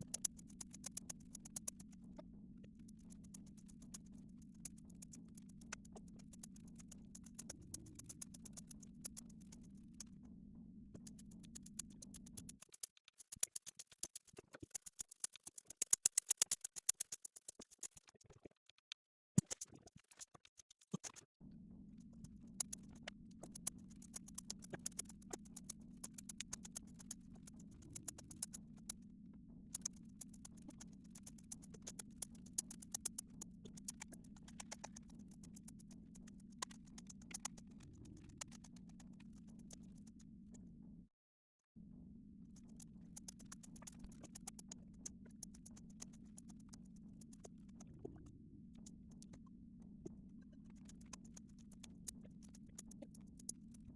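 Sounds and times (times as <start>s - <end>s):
low hum: 0.0s - 12.7s, 21.4s - 41.1s.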